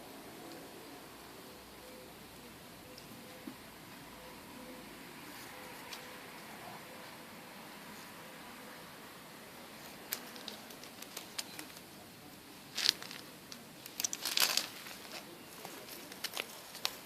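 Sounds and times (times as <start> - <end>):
kittens scratching and tapping: 9.9 - 11.9, 12.8 - 17.0.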